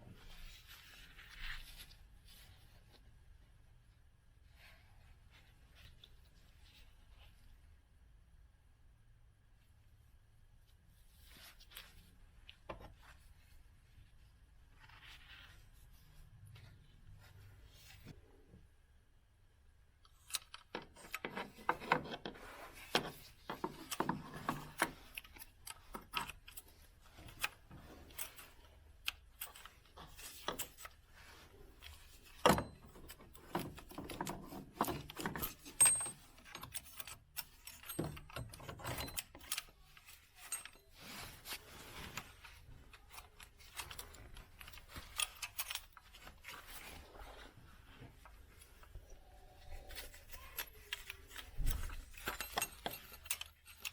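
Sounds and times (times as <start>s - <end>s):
metal tools clinking: 31.8s - 47.0s, 49.6s - 53.9s.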